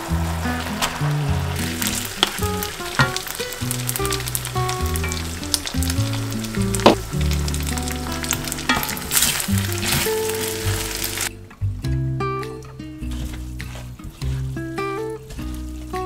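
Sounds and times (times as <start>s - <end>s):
rice and meat sizzling in a pan: 0.0s - 11.3s, 13.0s - 16.0s
wooden spatula scraping: 7.7s - 11.3s, 13.0s - 16.0s.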